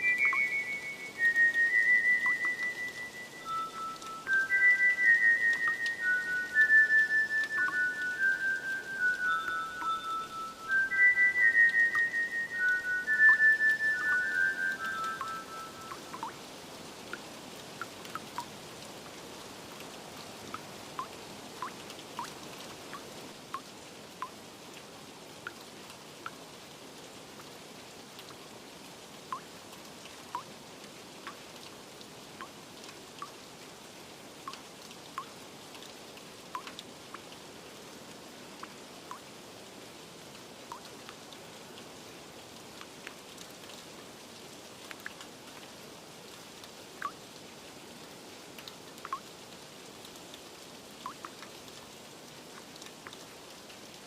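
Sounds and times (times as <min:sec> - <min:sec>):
water drips plinking: 0:00.0 - 0:19.1, 0:19.7 - 0:24.4, 0:29.2 - 0:30.5, 0:34.4 - 0:37.4, 0:38.6 - 0:39.3, 0:40.7 - 0:41.2, 0:46.6 - 0:47.2, 0:48.5 - 0:49.4, 0:51.0 - 0:51.9, 0:52.5 - 0:54.0
steady rain hiss: 0:00.0 - 0:54.0.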